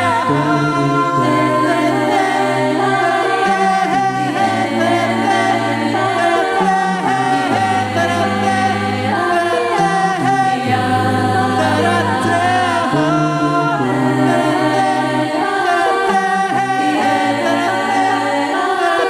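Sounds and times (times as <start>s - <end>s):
a cappella group singing: 0.0s - 19.0s.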